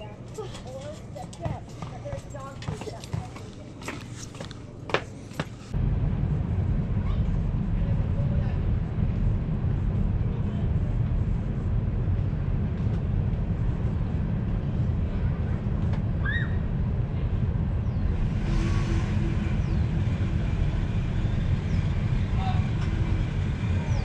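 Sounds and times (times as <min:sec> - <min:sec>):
vehicle engine idling: 0:17.0 - 0:24.0.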